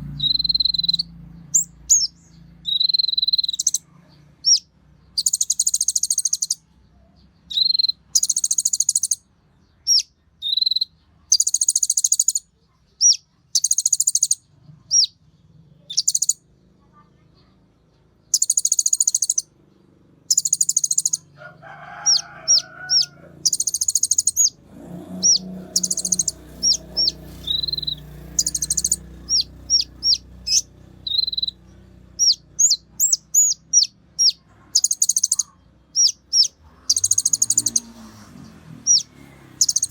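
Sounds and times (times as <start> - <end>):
bird buzzy trills: 0.0 - 3.8, 4.4 - 6.6, 18.3 - 19.5, 20.2 - 39.9
bird sharp high chips: 25.2 - 31.6.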